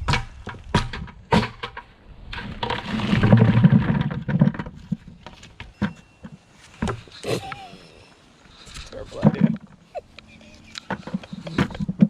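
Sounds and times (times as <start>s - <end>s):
potatoes tumbling clatter: 2.3s - 7.2s.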